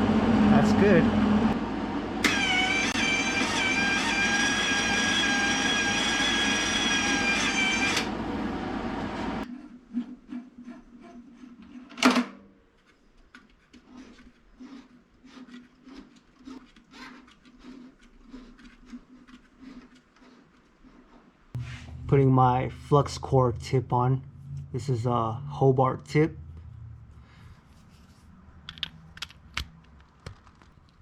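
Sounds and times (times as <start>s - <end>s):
wire-feed motor whining: 0.8s - 9.5s.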